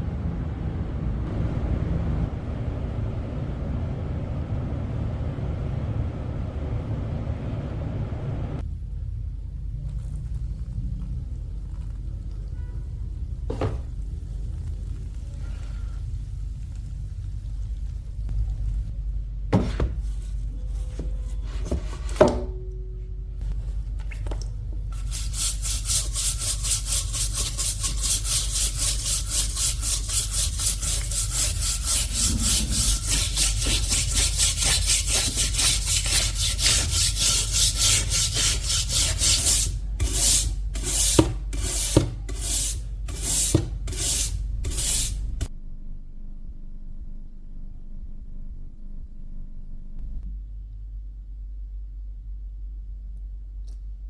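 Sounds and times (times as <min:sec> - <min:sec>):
steady low hum: 0:00.0 - 0:54.0
hand tool rasping: 0:25.1 - 0:45.1.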